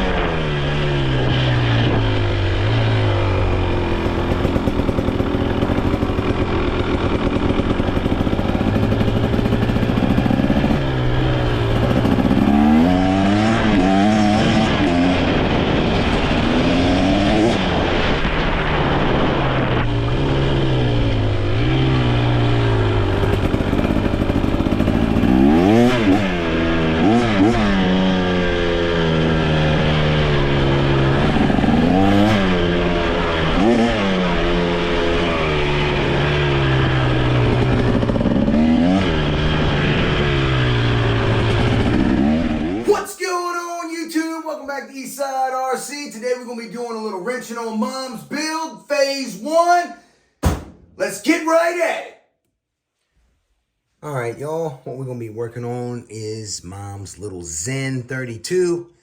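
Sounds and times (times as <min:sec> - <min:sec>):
small engine revving: 0:00.0 - 0:42.9.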